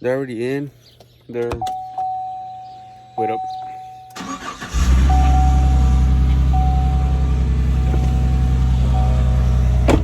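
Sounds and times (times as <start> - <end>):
pickup truck engine idling: 4.2 - 10.0.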